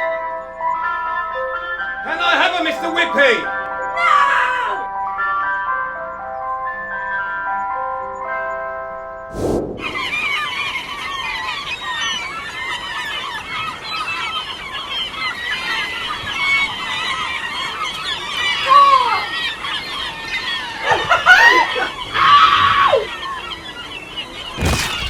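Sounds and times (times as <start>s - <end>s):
seagulls calling: 2.0s - 4.9s, 9.8s - 25.0s.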